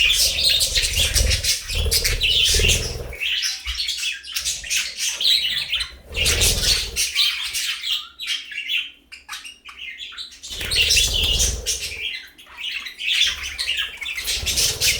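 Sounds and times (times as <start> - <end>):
budgerigars chattering and chirping: 0.0 - 14.9.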